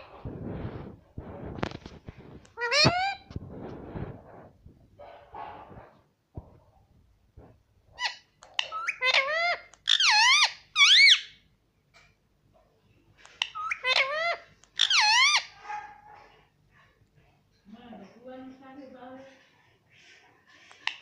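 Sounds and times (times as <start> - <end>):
parrot shrill squeaky calls: 2.6 - 3.2, 8.0 - 11.4, 13.4 - 15.6.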